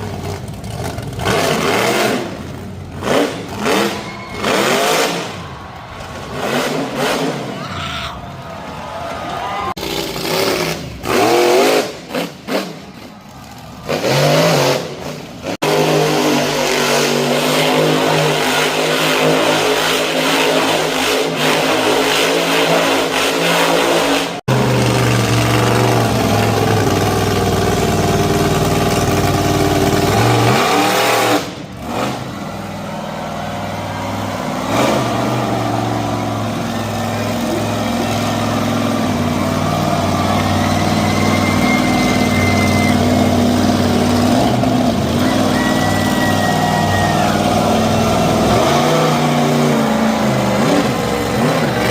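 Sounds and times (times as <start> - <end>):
monster truck engines revving: 0.0 - 51.9.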